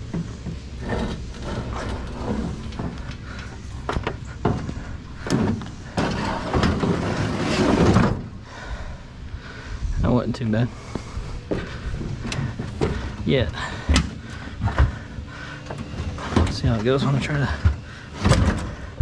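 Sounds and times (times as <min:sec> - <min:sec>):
heavy scrap knocking: 0:00.0 - 0:08.3
scraping metal clatter: 0:00.0 - 0:08.3.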